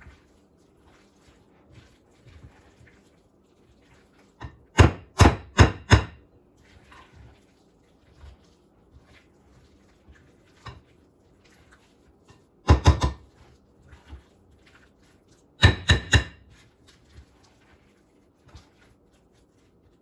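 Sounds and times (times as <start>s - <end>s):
spoon knocking on bowl rim: 12.7s - 13.2s.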